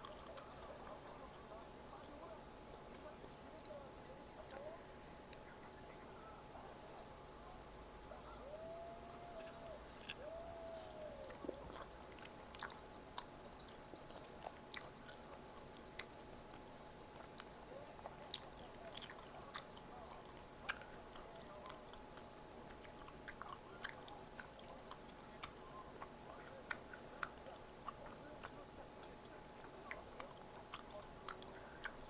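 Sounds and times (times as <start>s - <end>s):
crunchy chewing of snack food: 8.2s - 32.0s.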